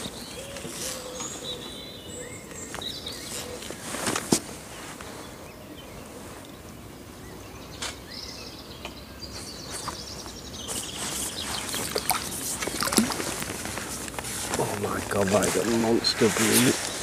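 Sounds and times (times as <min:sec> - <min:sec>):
lakeside background noise: 0:00.0 - 0:17.0
songbird warbling: 0:08.1 - 0:13.9
fishing gear clicks and knocks: 0:11.5 - 0:15.8.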